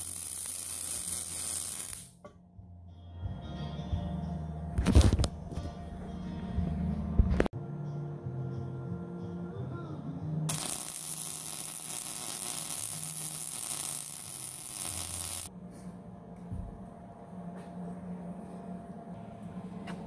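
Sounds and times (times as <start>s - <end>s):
welding arc crackling hiss: 0.0s - 2.2s, 10.5s - 15.5s
low electrical hum: 0.0s - 20.0s.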